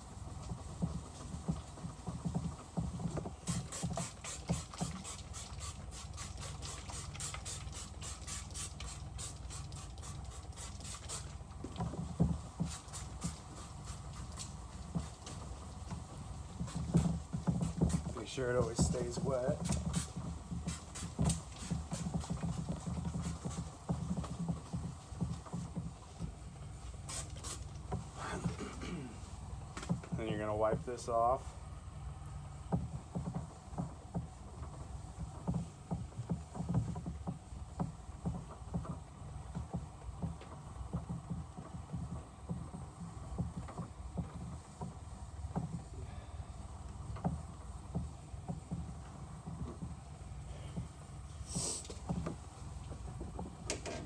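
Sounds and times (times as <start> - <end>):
sandpaper scuffing on plastic: 3.4 - 11.3, 12.6 - 15.4, 16.6 - 23.7.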